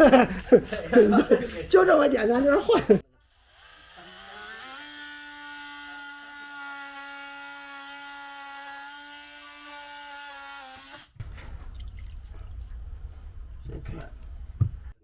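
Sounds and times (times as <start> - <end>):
electric power tool motor: 3.3 - 11.1.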